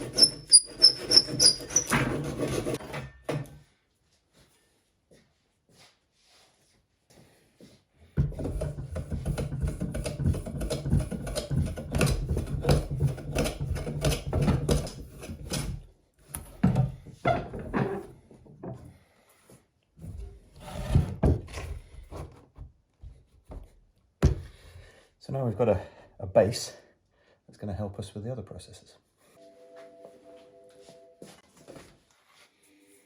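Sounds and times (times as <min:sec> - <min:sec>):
tool scraping wood: 0:00.0 - 0:03.1, 0:08.2 - 0:16.6, 0:20.0 - 0:22.4.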